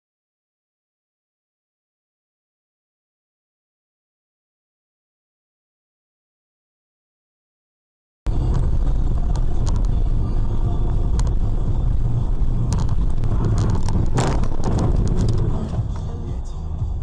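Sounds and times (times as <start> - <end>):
scattered clicks: 8.3 - 16.1
car engine and road rumble: 8.3 - 17.0.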